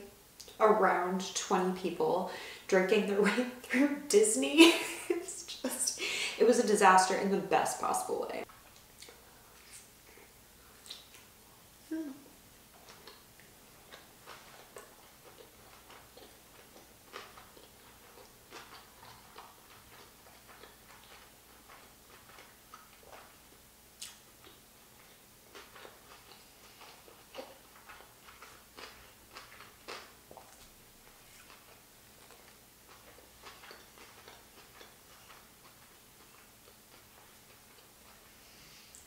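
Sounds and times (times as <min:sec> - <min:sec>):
faint close-up chewing: 0:08.4 - 0:39.0.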